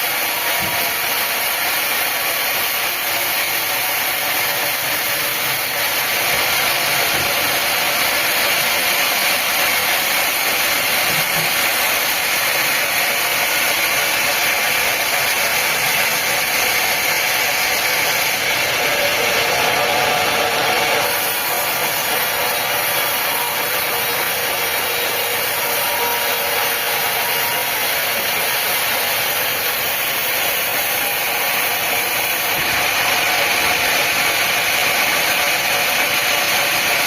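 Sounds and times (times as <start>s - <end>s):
sawmill saw running: 0.0s - 37.0s.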